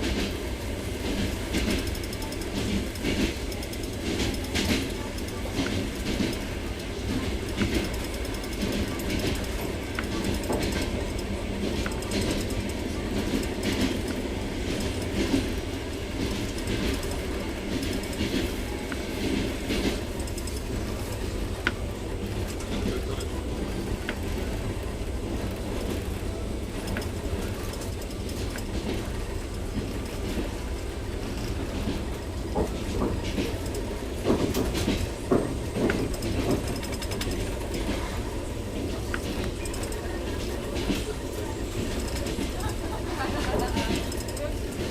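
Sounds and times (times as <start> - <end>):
train wheels rumbling on track: 0.0 - 44.9.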